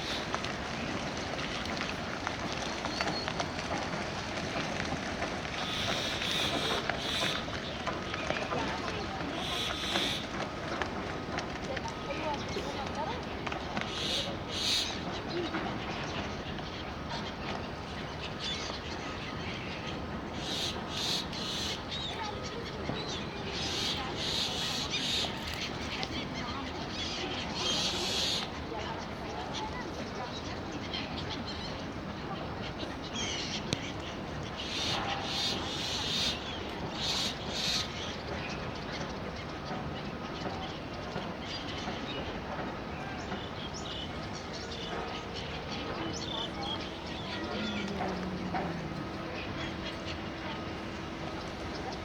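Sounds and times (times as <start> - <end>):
birds chirping: 0.0 - 3.8, 5.5 - 10.4, 11.8 - 52.0
rushing background noise: 41.1 - 52.0.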